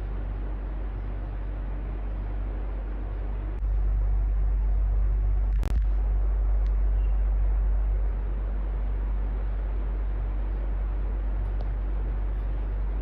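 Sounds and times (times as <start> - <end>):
electric fan running: 0.0 - 13.0.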